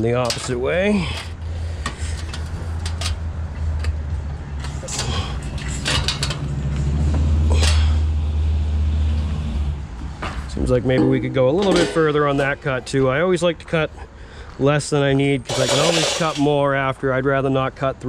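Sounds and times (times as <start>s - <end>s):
metal clicks and scrapes: 1.2s - 4.0s, 4.6s - 6.9s, 15.5s - 16.5s.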